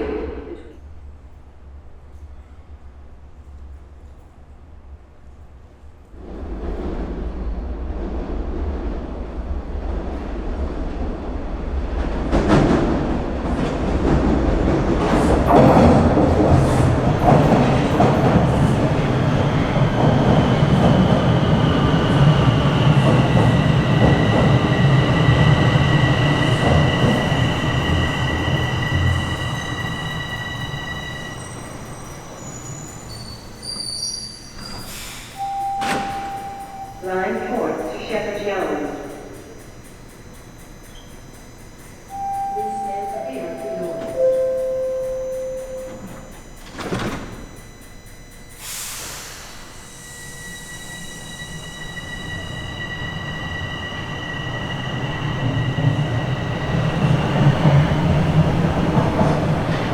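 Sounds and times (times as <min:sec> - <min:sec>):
subway train rail clatter: 0:00.0 - 0:59.9
wheel squeal: 0:21.0 - 0:35.4.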